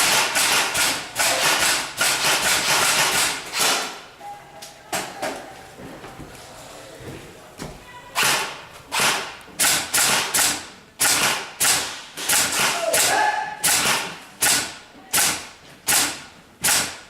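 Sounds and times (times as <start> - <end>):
airsoft gun shots echoing: 0.0 - 4.0, 8.2 - 17.0.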